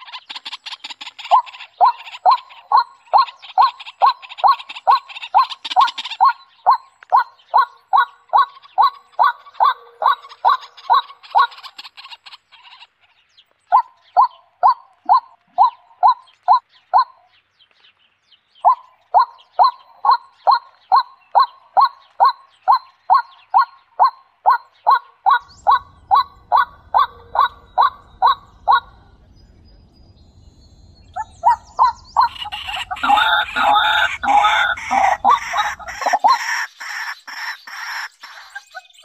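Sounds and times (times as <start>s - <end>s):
low steady rumble: 25.4s - 36.2s
bird calling short calls: 31.2s - 38.6s.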